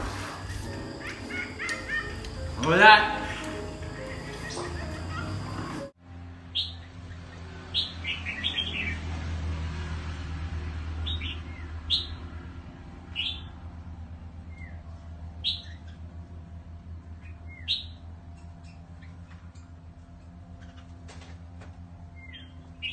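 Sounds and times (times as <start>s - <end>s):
birds chirping: 0.0s - 6.0s
steady low hum: 0.0s - 6.3s.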